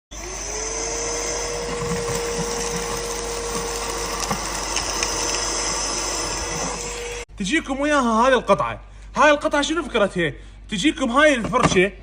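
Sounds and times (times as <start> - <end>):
vacuum cleaner running: 0.1 - 7.3.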